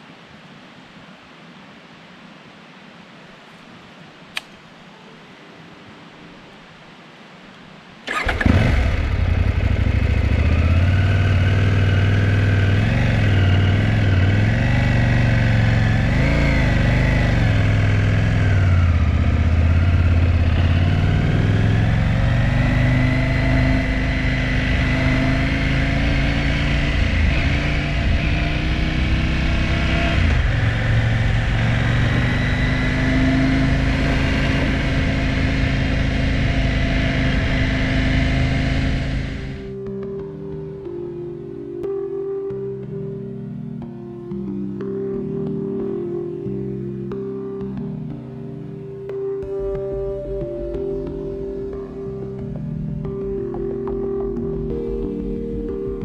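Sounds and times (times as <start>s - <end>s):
motorcycle engine running unevenly: 8.1s - 39.7s.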